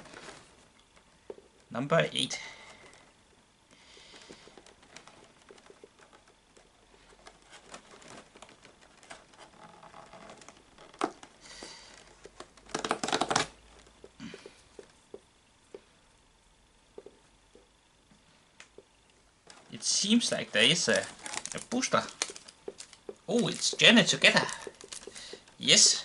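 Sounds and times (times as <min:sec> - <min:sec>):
cardboard and paper crinkling and tearing: 0:04.3 - 0:13.5, 0:19.5 - 0:25.3.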